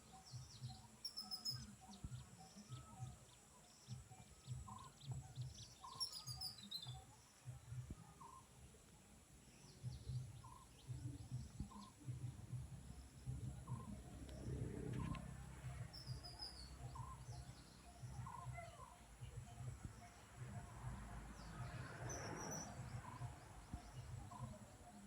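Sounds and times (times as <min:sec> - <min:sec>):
higher bird chirps: 0:00.0 - 0:07.6, 0:09.6 - 0:25.0
low rumble: 0:12.4 - 0:18.2.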